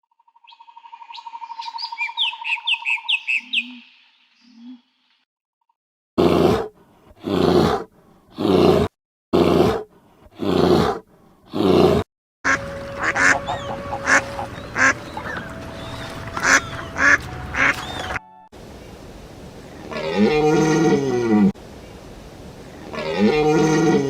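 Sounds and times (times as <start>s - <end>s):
short bird chirps: 1.1s - 5.2s
animal giving harsh calls: 8.4s - 15.4s
steady background hiss: 18.6s - 23.9s.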